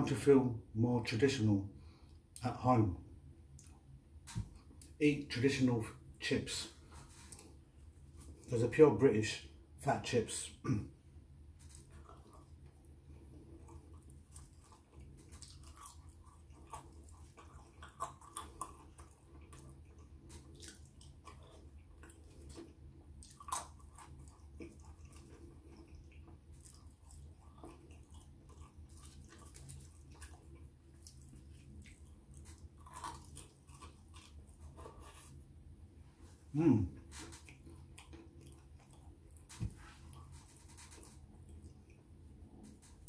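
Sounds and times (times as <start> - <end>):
person chewing crunchy chips: 11.6 - 35.4.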